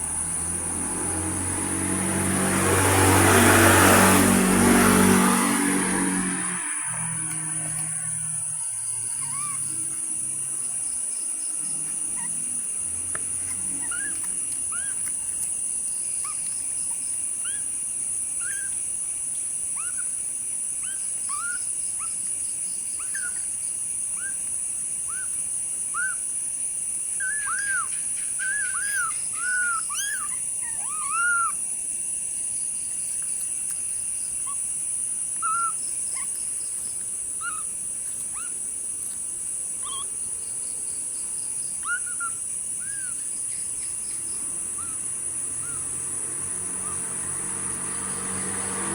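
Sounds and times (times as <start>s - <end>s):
kittens mewing: 4.8s - 10.6s, 11.6s - 15.5s, 27.1s - 31.8s, 35.3s - 39.2s, 39.8s - 40.4s, 41.7s - 43.4s.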